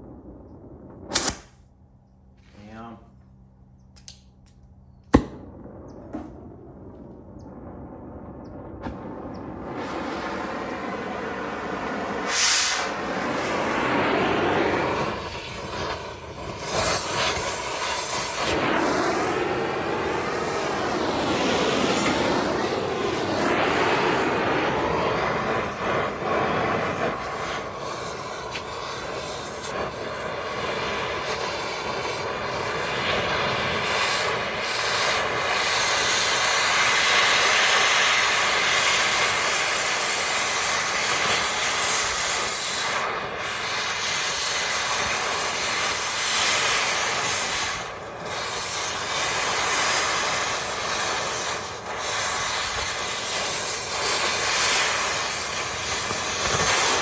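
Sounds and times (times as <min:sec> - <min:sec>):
cutting torch hissing: 0:01.0 - 0:01.6, 0:08.3 - 0:57.0.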